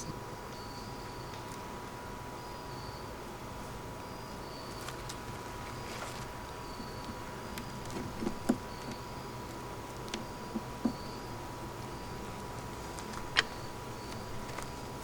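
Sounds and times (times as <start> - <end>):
wooden beehive parts knocking: 7.5 - 9.1, 10.0 - 11.1.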